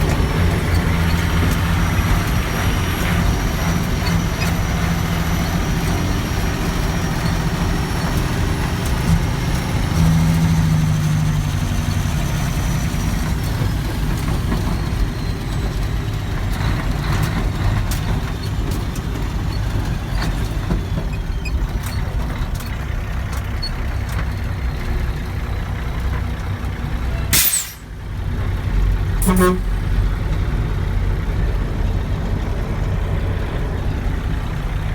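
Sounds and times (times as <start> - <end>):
diesel truck engine rumbling: 0.0 - 34.9
short sharp noise: 27.4 - 27.9, 29.2 - 29.8.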